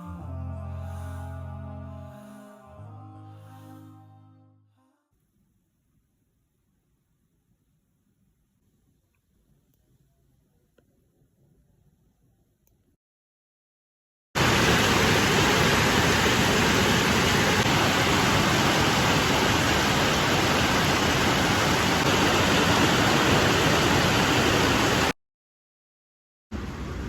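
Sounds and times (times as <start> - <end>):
heavy rain: 14.4 - 25.1.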